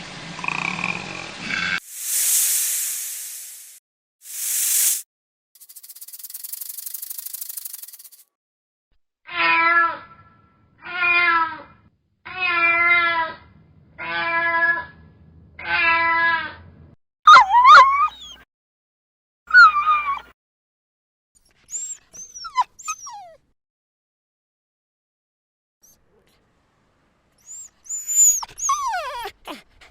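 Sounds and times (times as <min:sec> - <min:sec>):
animal calling: 0:27.4 - 0:29.9.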